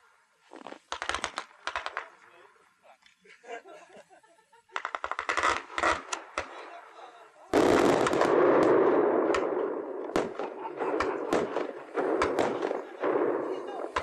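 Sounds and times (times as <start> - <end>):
fireworks crackling bangs: 0.0 - 2.7, 4.8 - 14.0
fireworks rushing burst: 4.8 - 14.0.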